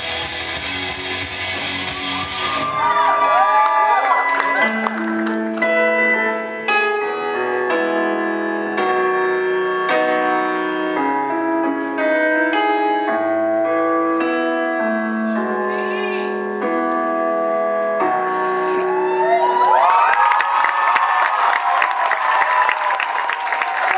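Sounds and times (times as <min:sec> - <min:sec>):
slow piano music: 0:02.4 - 0:20.6.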